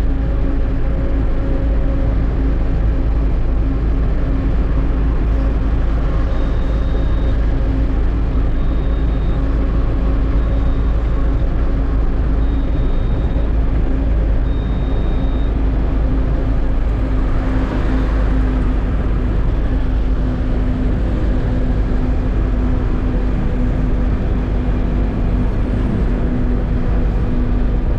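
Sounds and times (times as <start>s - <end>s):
road noise: 0.0s - 27.9s
truck engine rumble: 0.0s - 27.9s
faint high-pitched beeps: 5.9s - 16.7s.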